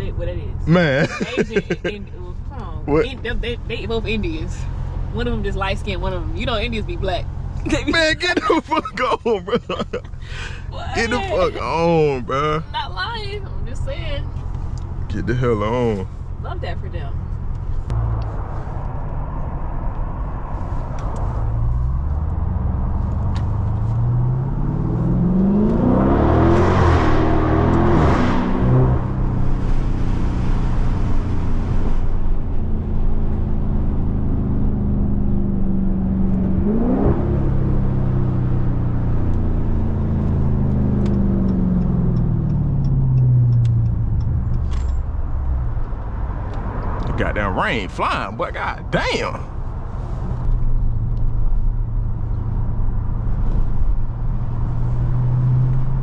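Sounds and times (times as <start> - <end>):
car engine accelerating hard: 0.4 - 56.0.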